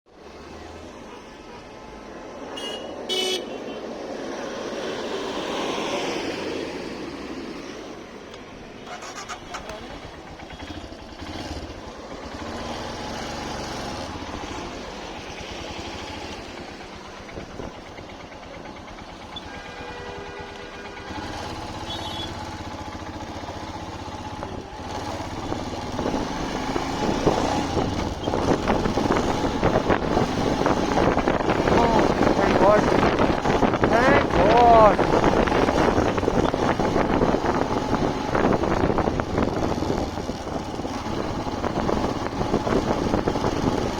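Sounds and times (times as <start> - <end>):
road traffic passing: 0.1 - 43.9
vehicle horns honking: 2.5 - 3.9, 19.3 - 22.5
wind buffeting microphone: 24.3 - 43.9.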